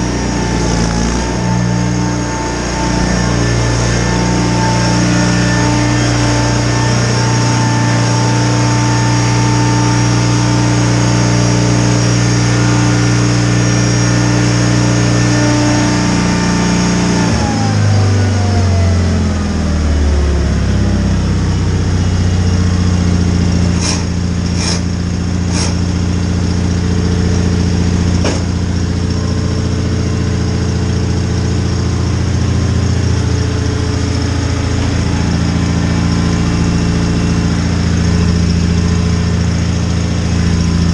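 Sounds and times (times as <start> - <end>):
garden tractor engine running: 0.0 - 19.2, 21.2 - 40.9
sharp knocks: 28.2 - 28.6.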